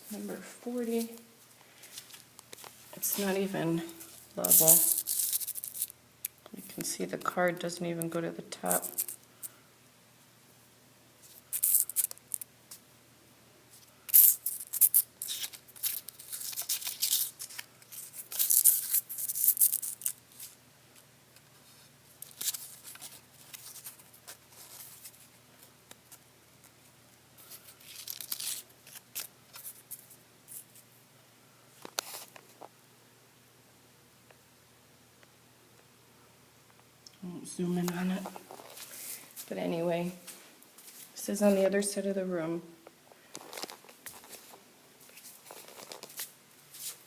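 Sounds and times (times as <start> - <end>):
rustling and scraping: 0.0 - 6.0, 13.7 - 20.6, 21.4 - 30.9, 31.8 - 32.7, 37.9 - 41.6, 43.2 - 47.0.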